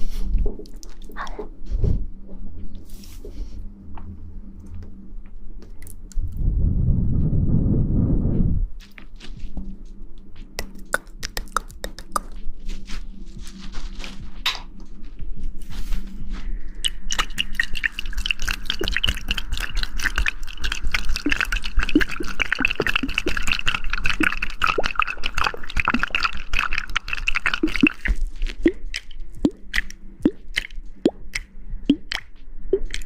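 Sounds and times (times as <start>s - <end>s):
wet squishes of hair lather: 16.8s - 33.0s.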